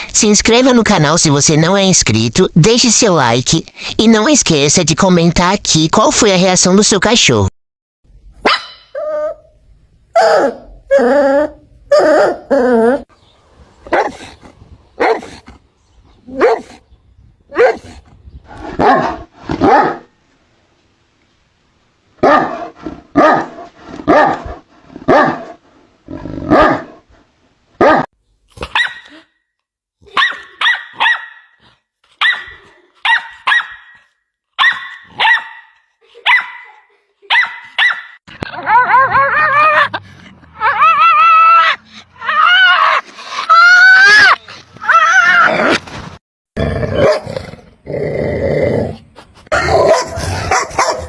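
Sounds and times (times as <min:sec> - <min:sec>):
dog barking: 0:08.4 - 0:08.8, 0:13.9 - 0:14.2, 0:15.0 - 0:15.4, 0:16.4 - 0:16.8, 0:17.5 - 0:18.0, 0:18.8 - 0:20.1, 0:22.2 - 0:24.4, 0:25.1 - 0:25.4, 0:26.5 - 0:26.9, 0:27.8 - 0:29.2, 0:30.1 - 0:31.6, 0:32.2 - 0:34.0, 0:34.6 - 0:39.9, 0:47.0 - 0:47.3, 0:49.5 - 0:51.0
puppy yapping: 0:37.3 - 0:40.0, 0:49.5 - 0:51.0.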